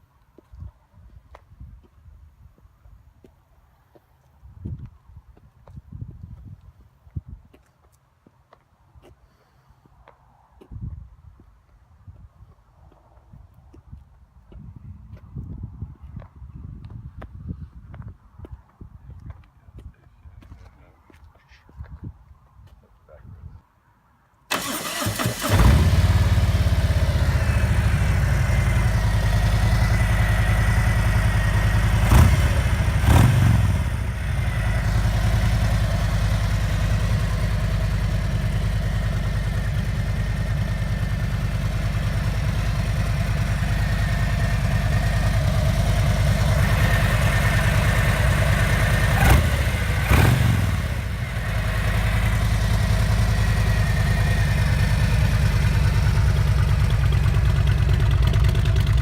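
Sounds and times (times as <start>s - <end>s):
motorcycle engine idling and revving: 24.5s - 59.0s.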